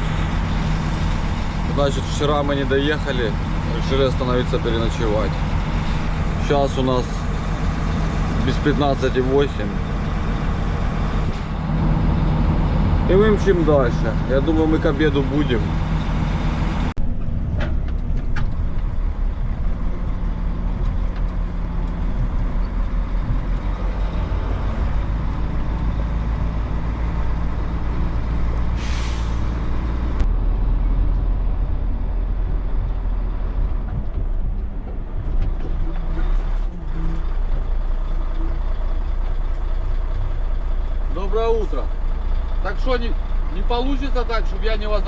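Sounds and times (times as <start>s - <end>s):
truck diesel engine running: 0.0s - 45.0s
air hiss: 28.8s - 29.6s.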